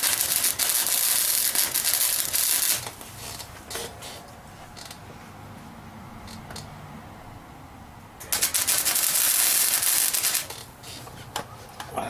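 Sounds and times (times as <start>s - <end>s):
welding crackle: 0.0s - 4.2s, 8.2s - 11.1s.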